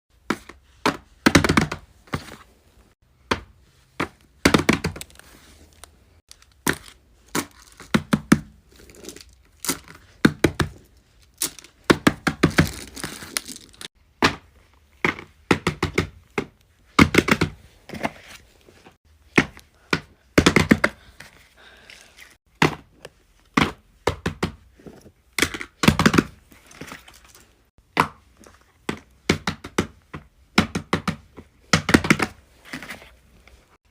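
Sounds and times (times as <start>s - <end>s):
scraping or crinkling: 12.5s - 13.9s.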